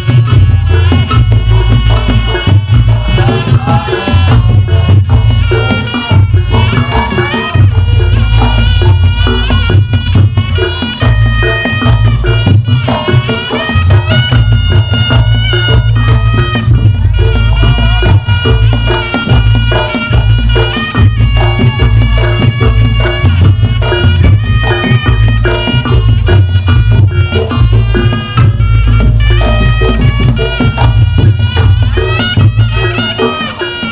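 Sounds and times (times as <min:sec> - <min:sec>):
drums: 0:00.0 - 0:33.9
heavy bass: 0:00.0 - 0:33.9
reedy shawm melody: 0:00.0 - 0:33.9.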